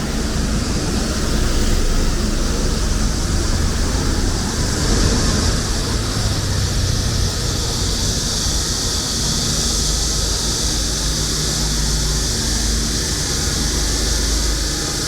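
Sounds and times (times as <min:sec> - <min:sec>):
cicada chorus: 0:00.0 - 0:15.0
traffic rumble: 0:00.0 - 0:15.0.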